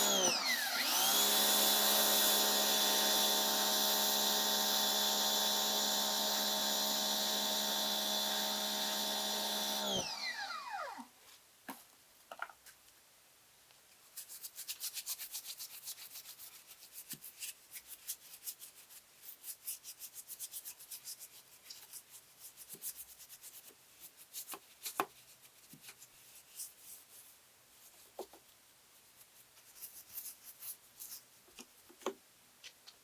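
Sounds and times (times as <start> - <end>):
brush scrubbing: 14.1 - 28.0, 29.1 - 31.3.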